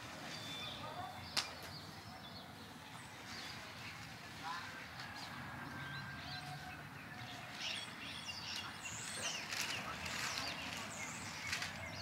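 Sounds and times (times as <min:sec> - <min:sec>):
small songbirds chirping: 0:05.7 - 0:12.0.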